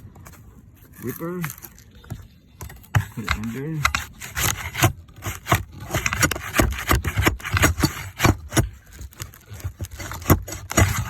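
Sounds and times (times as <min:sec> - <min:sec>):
shingle ripper scraping wood: 0:02.8 - 0:11.0.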